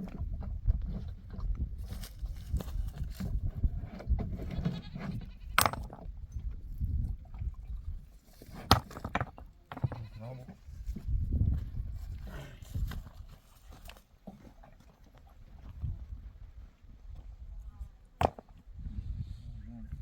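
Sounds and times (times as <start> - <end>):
sheep or goats bleating: 4.4 - 5.6, 9.8 - 10.5.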